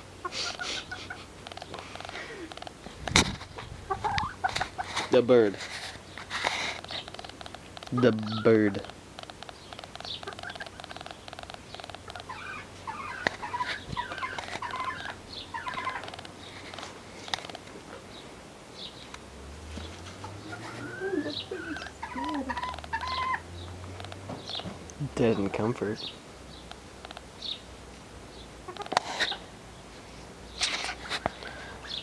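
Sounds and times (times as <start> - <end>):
birds chirping and calling: 0.2 - 32.0.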